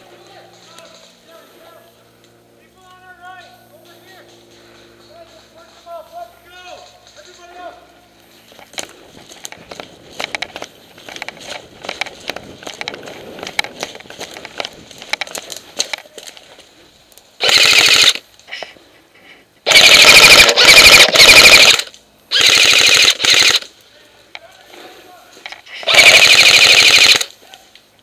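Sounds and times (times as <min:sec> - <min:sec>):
airsoft gun bursts: 0:17.4 - 0:18.2, 0:19.6 - 0:23.7, 0:25.7 - 0:27.4.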